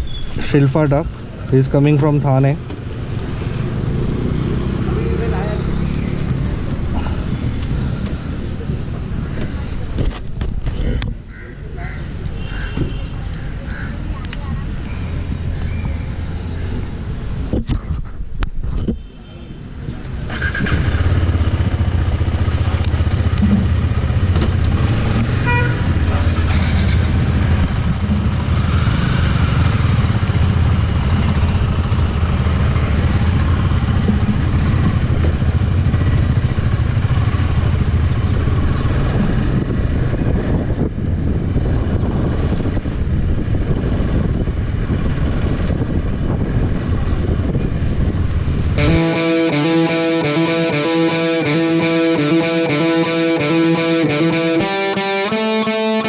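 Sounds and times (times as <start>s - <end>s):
wind and road noise: 0.0s - 56.0s
motorcycle engine hum: 1.0s - 10.7s, 20.1s - 56.0s
distorted electric guitar music: 48.8s - 56.0s.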